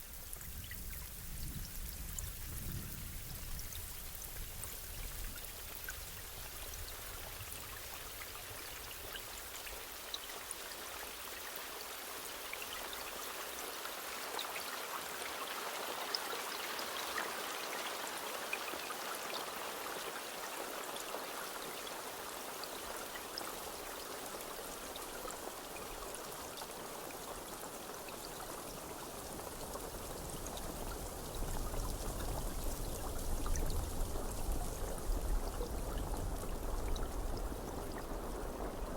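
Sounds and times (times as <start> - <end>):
steady rainfall: 0.0 - 38.9.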